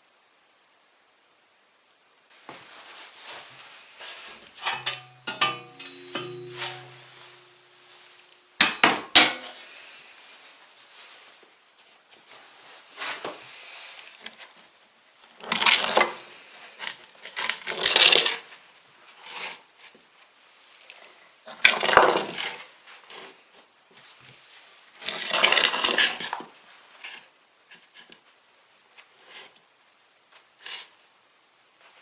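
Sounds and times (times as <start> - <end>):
hard objects scraping: 2.6 - 8.4.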